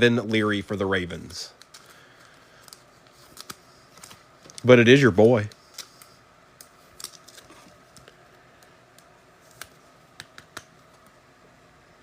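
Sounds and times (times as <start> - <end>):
trading cards clicking and tapping: 7.9 - 11.1.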